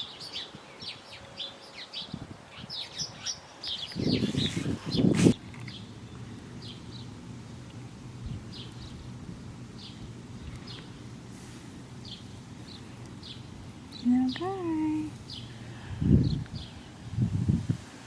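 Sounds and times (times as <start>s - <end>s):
small bird chirping: 0.0s - 7.1s
rustle: 0.0s - 18.0s.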